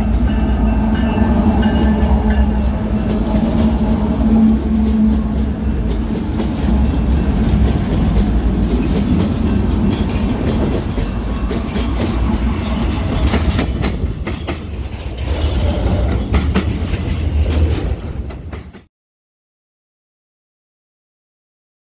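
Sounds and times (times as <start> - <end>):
diesel locomotive rumble: 0.0 - 18.8
wheels clicking over rail joints: 5.0 - 18.9.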